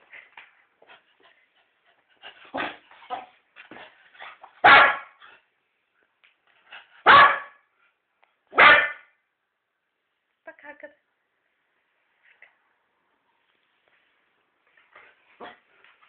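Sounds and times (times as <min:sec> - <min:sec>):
dog yipping: 0:04.6 - 0:05.1, 0:07.0 - 0:07.5
dog barking: 0:04.6 - 0:05.2, 0:07.0 - 0:07.6, 0:08.5 - 0:09.1.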